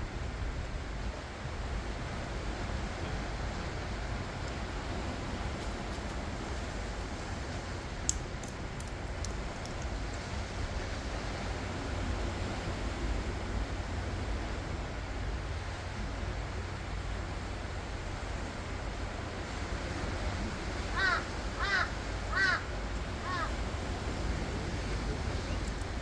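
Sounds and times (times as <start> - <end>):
ocean surf washing ashore: 0.0 - 26.0
faint sharp clicks: 8.1 - 10.2.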